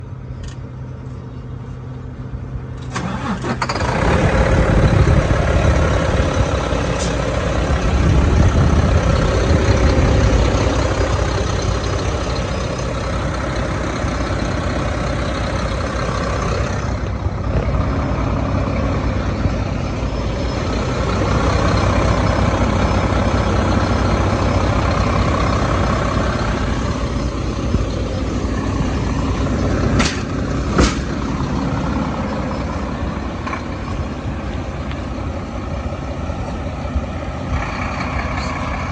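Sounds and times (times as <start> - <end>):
truck diesel engine starting: 0.0 - 38.9.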